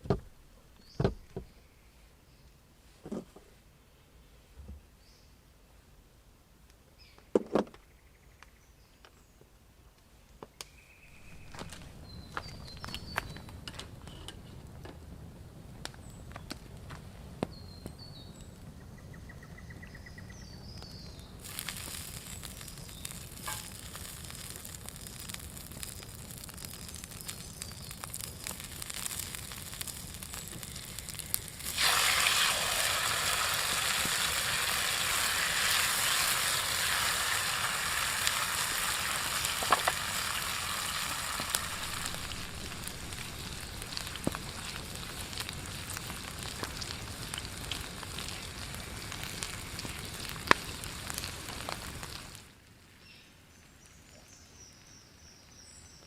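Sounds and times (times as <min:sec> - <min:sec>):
faint bird chirps: 0:10.5 - 0:14.3, 0:17.5 - 0:21.4
campfire crackling and popping: 0:10.6 - 0:53.0
food sizzling on a grill: 0:21.1 - 0:52.5.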